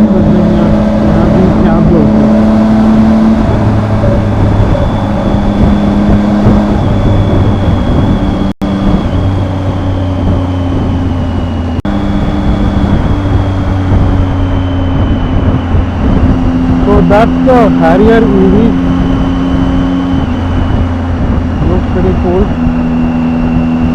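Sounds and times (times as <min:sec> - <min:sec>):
faint high whine: 0:00.0 - 0:23.9
motorcycle engine running: 0:00.0 - 0:23.9.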